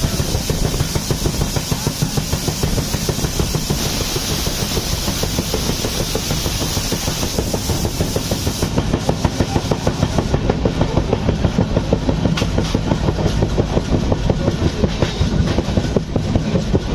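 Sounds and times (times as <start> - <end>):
low train rumble: 0.0 - 16.9
train wheels clattering: 0.0 - 16.9.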